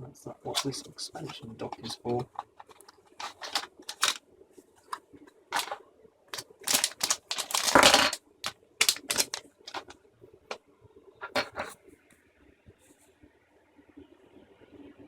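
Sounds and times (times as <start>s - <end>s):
handling noise: 0.5s - 4.2s, 4.8s - 5.8s, 6.4s - 9.9s, 11.2s - 11.8s.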